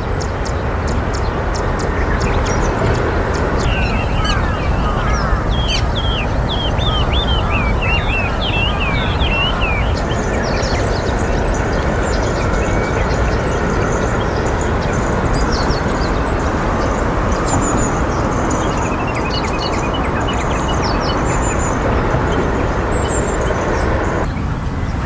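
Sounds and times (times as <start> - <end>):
loud steady rumbling: 0.0 - 24.3
high bird chirps: 3.6 - 11.3.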